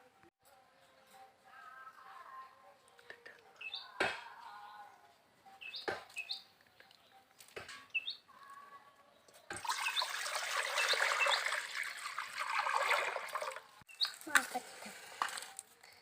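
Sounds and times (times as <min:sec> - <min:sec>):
small birds chirping: 0:00.8 - 0:12.1, 0:13.8 - 0:16.0
water pouring and splashing: 0:09.5 - 0:13.8.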